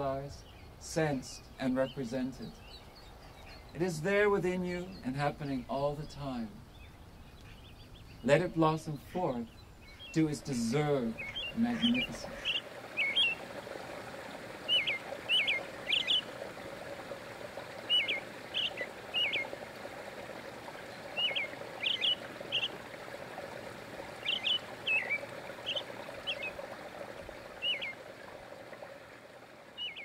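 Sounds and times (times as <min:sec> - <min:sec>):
small songbird chirping: 0:00.4 - 0:03.9, 0:04.8 - 0:13.4, 0:14.2 - 0:16.4, 0:17.8 - 0:19.6, 0:20.7 - 0:22.8, 0:24.2 - 0:26.7, 0:27.5 - 0:28.0, 0:29.8 - 0:30.0
small waterfall rushing: 0:10.2 - 0:30.0.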